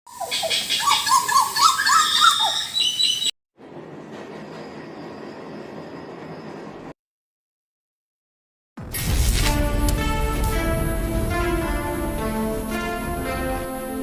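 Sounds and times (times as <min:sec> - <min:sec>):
bird singing: 0:00.1 - 0:03.3.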